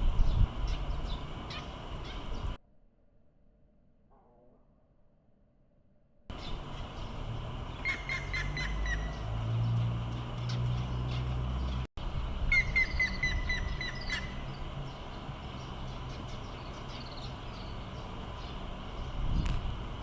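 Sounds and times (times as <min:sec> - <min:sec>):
woodpecker whistled notes: 0:07.8 - 0:09.4, 0:12.5 - 0:14.4.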